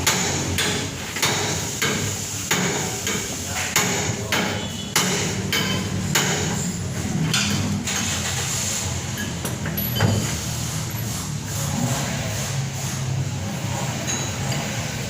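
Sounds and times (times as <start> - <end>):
hammer striking metal: 0.0 - 7.8.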